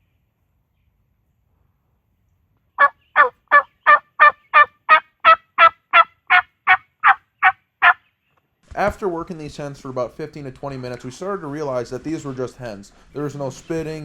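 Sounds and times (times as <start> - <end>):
wild turkey hen yelps: 2.8 - 8.0.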